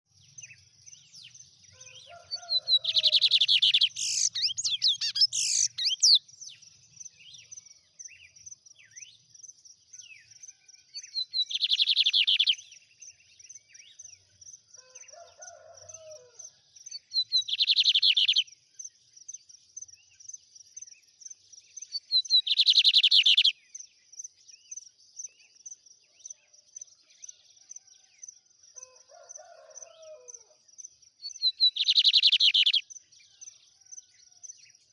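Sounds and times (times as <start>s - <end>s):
bird singing trilled song: 0.2s - 14.3s, 16.9s - 25.8s, 31.2s - 33.9s
high chittering: 3.7s - 6.2s.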